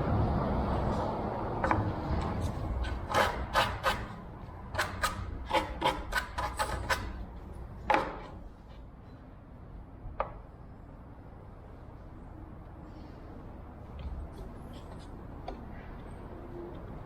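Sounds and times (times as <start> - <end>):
hand tool rasping on wood: 2.3 - 7.2.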